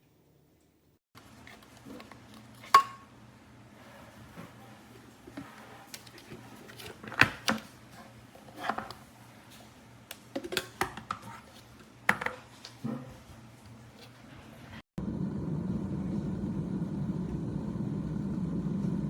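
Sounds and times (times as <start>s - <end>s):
kitchen items clicking and clinking: 1.2s - 3.2s, 3.9s - 14.8s.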